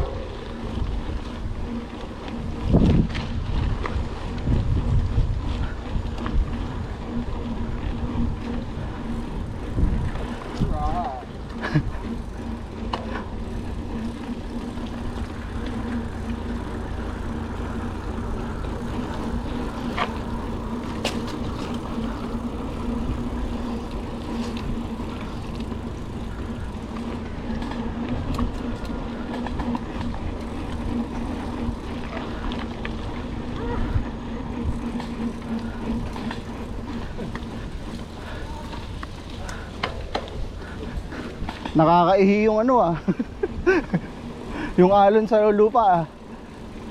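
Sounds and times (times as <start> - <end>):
wind on microphone: 0.0 - 12.1
bike rattles and clicks: 0.0 - 46.9
bike tyre rumble on rough ground: 0.0 - 46.9.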